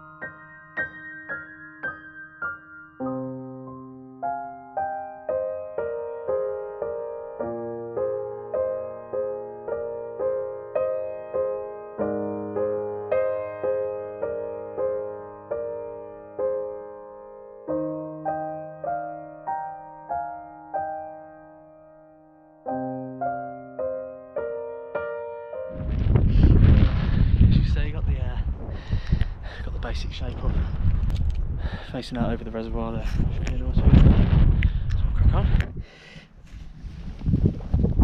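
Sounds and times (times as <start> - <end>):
slow solo piano piece: 0.0 - 27.4.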